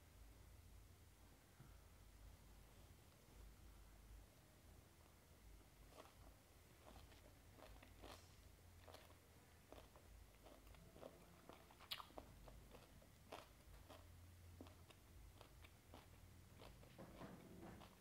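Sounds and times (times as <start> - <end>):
chewing crunchy food: 6.8 - 18.0
mouth clicks: 9.7 - 16.8.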